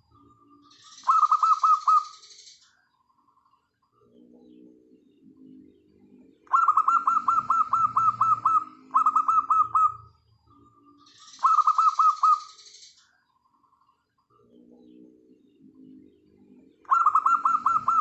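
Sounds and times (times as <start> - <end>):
rapid down-slurred dove calls: 0.8 - 2.3, 6.4 - 10.0, 11.2 - 12.7, 16.8 - 18.0
dove cooing: 0.9 - 2.1, 5.3 - 10.1, 11.3 - 12.6, 15.8 - 18.0.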